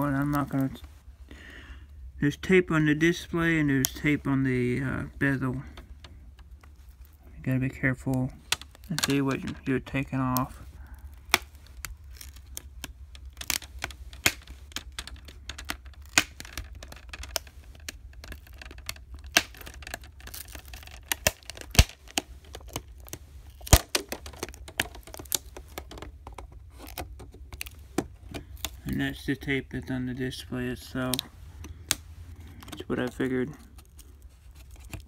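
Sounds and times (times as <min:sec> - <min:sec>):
adhesive tape peeling: 0:10.3 - 0:29.4.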